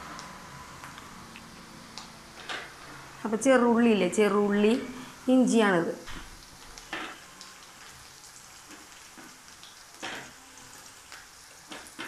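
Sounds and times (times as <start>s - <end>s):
onions sizzling in hot oil: 4.5s - 12.0s.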